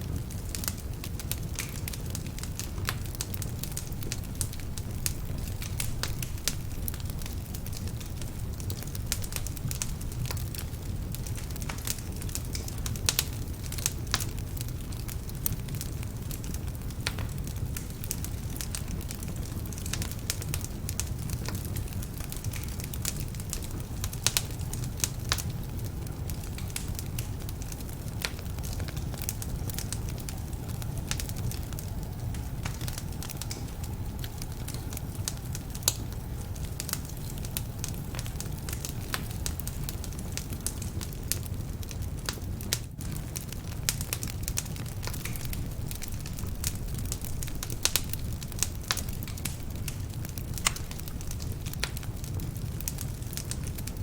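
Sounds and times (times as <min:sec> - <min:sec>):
low rumble of flames: 0:00.0 - 0:54.0
wood fire crackling and popping: 0:00.0 - 0:54.0.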